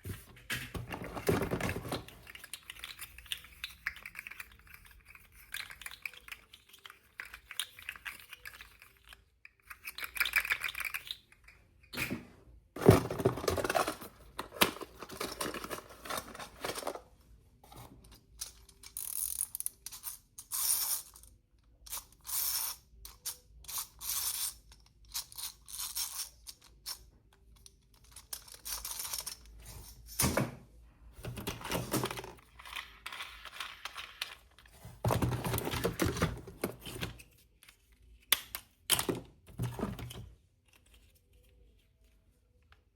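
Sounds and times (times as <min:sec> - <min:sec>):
packaging rustling and crinkling: 0:12.8 - 0:17.1.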